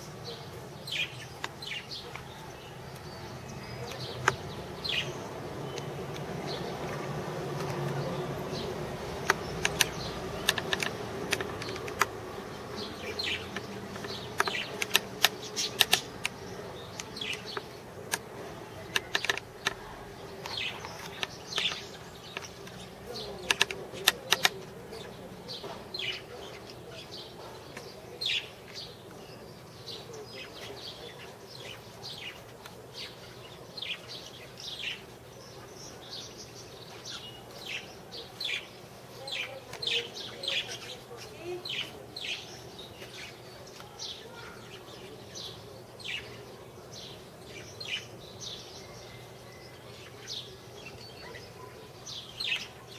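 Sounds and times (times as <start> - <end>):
birds chirping: 0.0 - 52.9
sharp clicks: 3.9 - 4.6, 8.6 - 12.4, 13.0 - 24.8.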